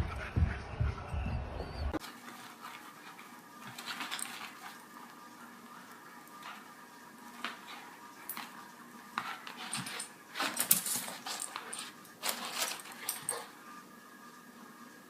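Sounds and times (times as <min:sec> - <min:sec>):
rustles: 0:09.2 - 0:13.6.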